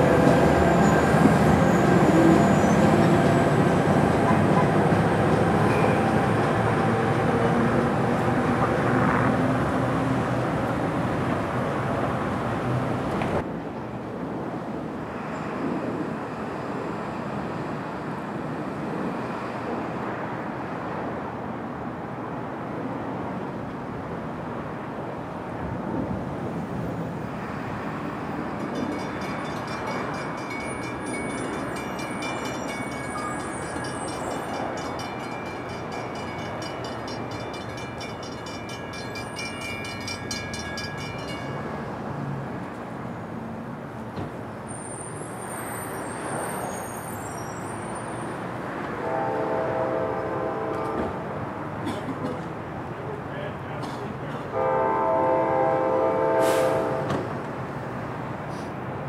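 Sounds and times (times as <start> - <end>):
train wheels rumbling on rail: 0.0 - 21.1, 48.1 - 59.0
high squeal: 0.7 - 3.0, 30.6 - 34.7, 44.7 - 48.4.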